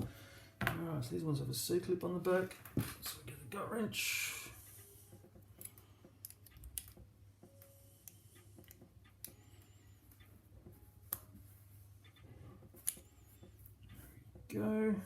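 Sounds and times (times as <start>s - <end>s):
small metallic padlock clicks: 5.6s - 7.0s.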